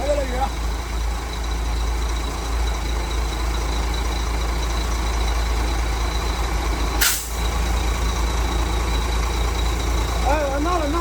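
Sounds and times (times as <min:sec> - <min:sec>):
diesel truck engine idling: 0:00.0 - 0:11.0
burst of hiss: 0:07.0 - 0:07.4.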